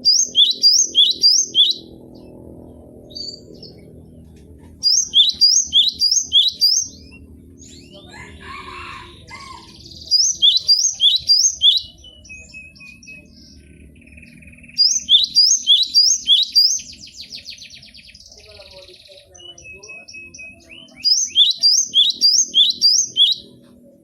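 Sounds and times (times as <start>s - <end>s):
bird singing high whistled notes: 0.0s - 2.3s, 4.8s - 8.0s, 9.6s - 18.3s, 19.4s - 23.6s.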